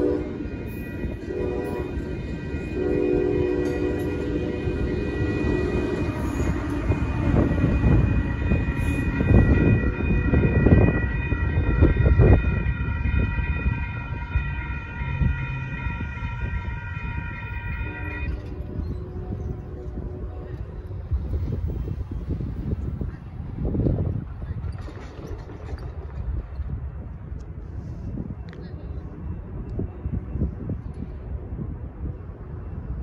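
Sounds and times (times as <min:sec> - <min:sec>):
train horn: 0:00.0 - 0:21.8
crossing warning bells: 0:00.0 - 0:33.0
train rumbling and clattering: 0:00.0 - 0:33.0.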